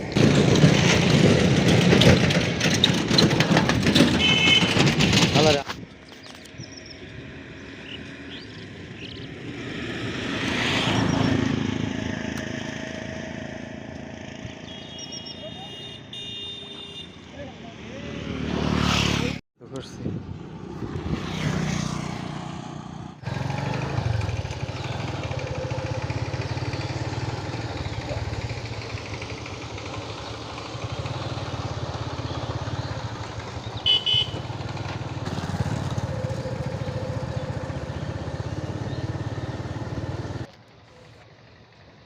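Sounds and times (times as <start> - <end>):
vehicle engine running: 0.0 - 5.7, 22.7 - 42.0
car horn double beep: 4.2 - 4.8, 14.6 - 17.3, 33.8 - 34.5.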